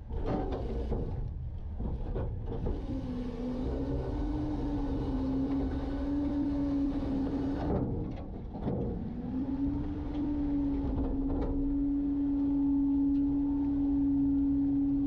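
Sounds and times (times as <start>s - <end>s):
garbage truck engine rumble: 0.0s - 15.0s
steady whine: 8.9s - 15.0s.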